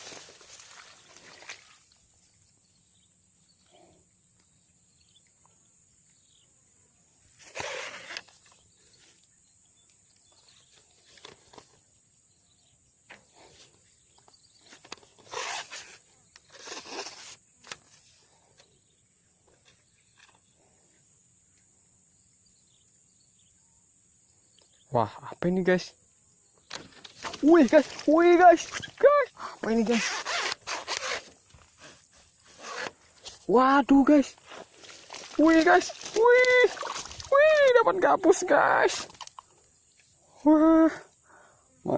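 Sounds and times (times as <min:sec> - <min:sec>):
short rustling: 0:26.8 - 0:33.5, 0:34.1 - 0:37.8.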